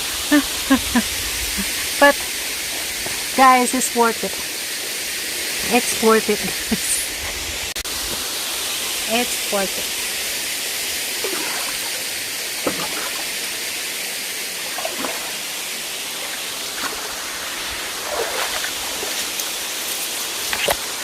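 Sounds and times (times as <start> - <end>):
waterfall pouring into pool: 7.5 - 21.0.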